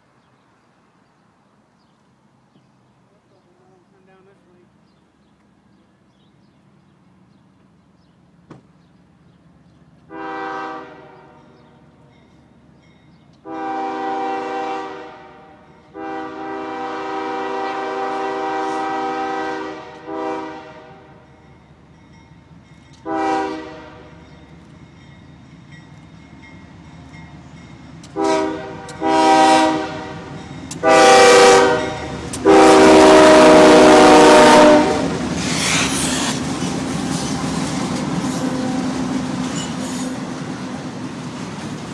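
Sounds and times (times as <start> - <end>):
train rumble: 0.0 - 41.9
locomotive air horn blasts: 10.1 - 11.6, 13.4 - 21.2, 23.0 - 24.2, 28.1 - 35.8.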